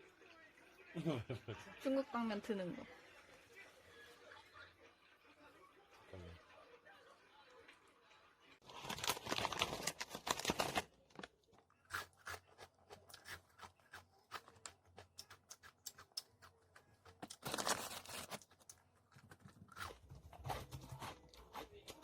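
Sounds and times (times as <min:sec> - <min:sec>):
chewing with small crunches: 0:11.1 - 0:22.0.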